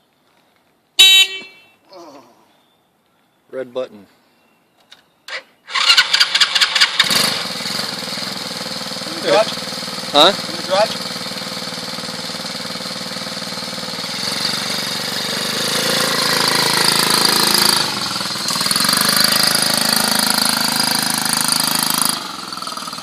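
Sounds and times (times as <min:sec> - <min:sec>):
small motorbike engine revving: 0:05.3 - 0:23.0.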